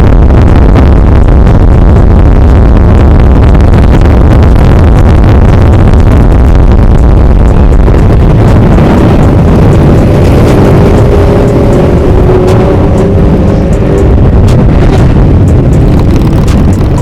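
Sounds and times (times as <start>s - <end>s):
steady tones: 0.0s - 17.0s
motorbike engines: 8.8s - 17.0s.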